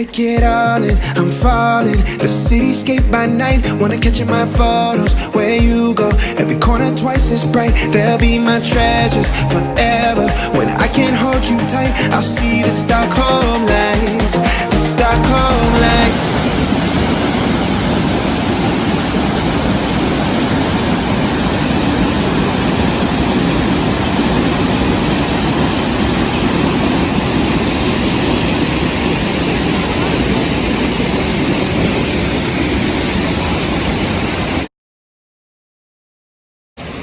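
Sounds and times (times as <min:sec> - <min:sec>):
waterfall and rushing river: 0:07.3 - 0:34.7.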